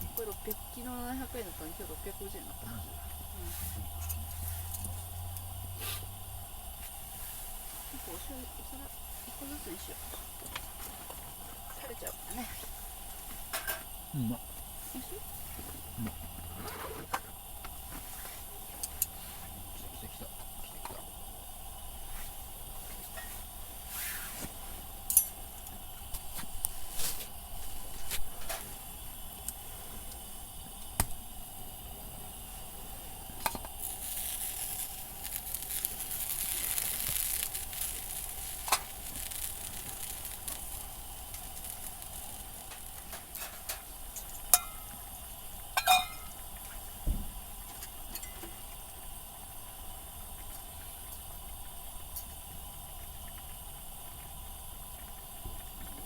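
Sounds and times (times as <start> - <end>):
pan sizzling: 0.0 - 56.0
dishes and utensils clinking: 43.4 - 45.0, 45.8 - 46.4.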